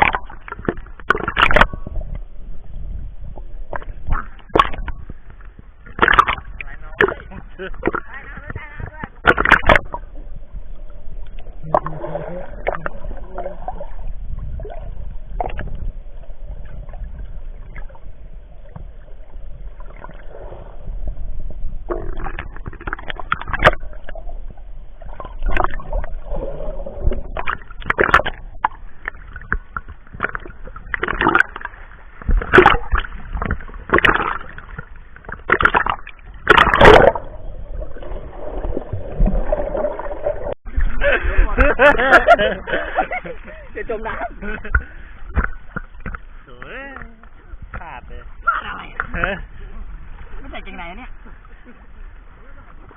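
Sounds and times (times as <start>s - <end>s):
low rumble: 0.0s - 31.0s, 36.0s - 46.6s
seawater splashing and sloshing: 25.0s - 47.8s.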